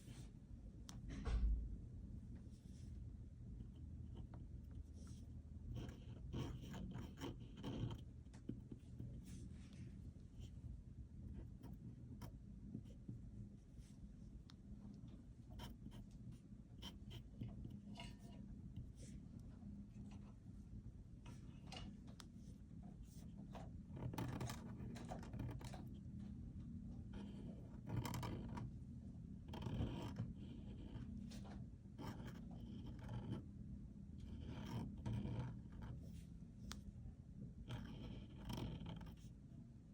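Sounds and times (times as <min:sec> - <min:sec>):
low room hum: 0:00.0 - 0:39.9
pen scratching on paper: 0:03.5 - 0:14.0, 0:15.3 - 0:19.2, 0:22.2 - 0:26.0, 0:27.1 - 0:28.7, 0:29.4 - 0:33.5, 0:34.2 - 0:36.8, 0:37.6 - 0:39.3.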